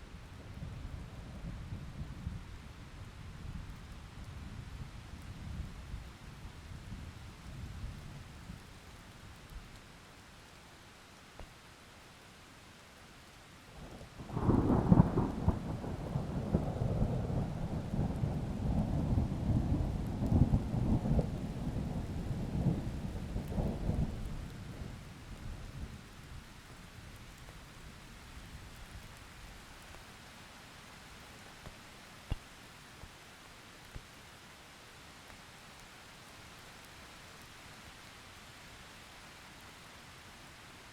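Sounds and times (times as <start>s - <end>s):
steady rain: 0.0s - 40.9s
thunder rumbling: 14.2s - 25.0s.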